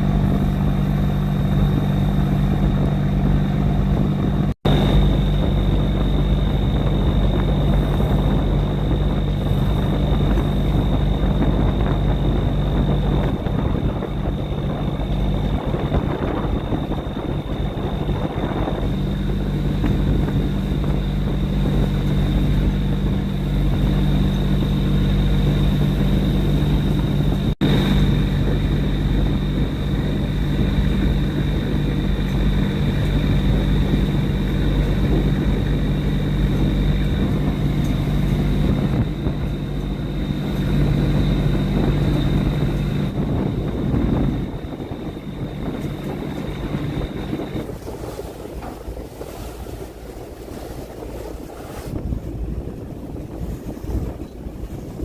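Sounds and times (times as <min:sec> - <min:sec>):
thin high whine: 0:00.0 - 0:52.1
boat engine running: 0:00.0 - 0:55.0.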